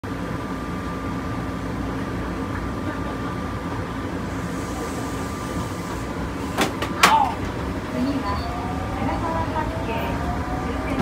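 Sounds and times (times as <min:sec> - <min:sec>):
train cabin running noise: 0:00.0 - 0:11.0.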